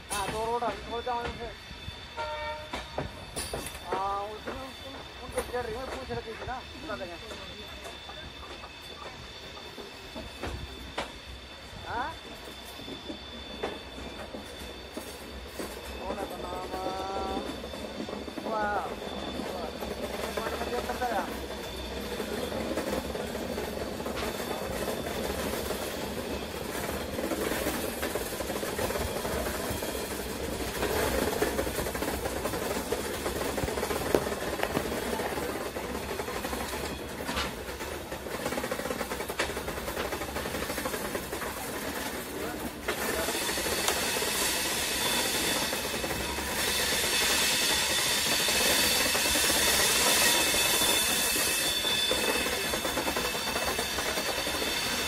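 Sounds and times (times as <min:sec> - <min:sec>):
faint high whine: 0:00.0 - 0:37.5
train carriage running on track: 0:00.0 - 0:55.0.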